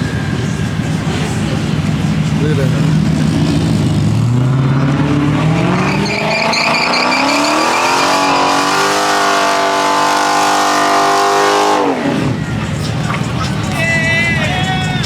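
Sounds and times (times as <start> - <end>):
car engine revving hard: 2.4 - 12.4.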